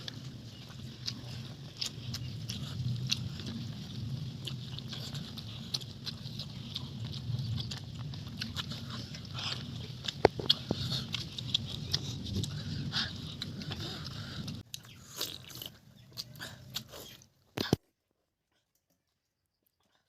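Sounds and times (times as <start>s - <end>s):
low hum: 0.0s - 16.9s
person chewing and lip smacking: 0.0s - 17.8s.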